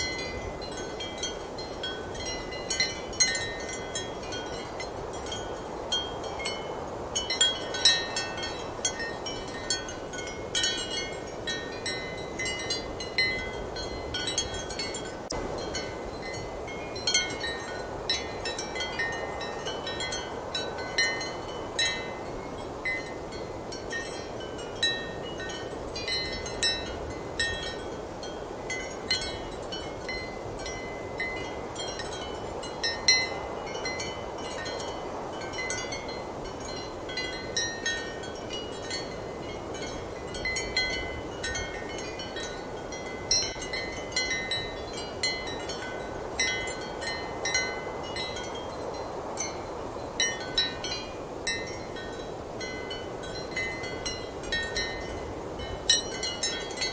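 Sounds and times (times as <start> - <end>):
ceramic wind chimes clinking: 0.0 - 56.9.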